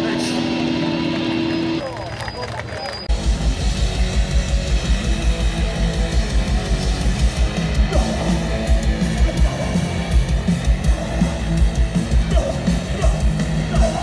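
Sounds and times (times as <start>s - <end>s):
distorted electric guitars: 0.0s - 2.0s, 3.0s - 14.0s
rapid pounding drum beat: 3.1s - 14.0s.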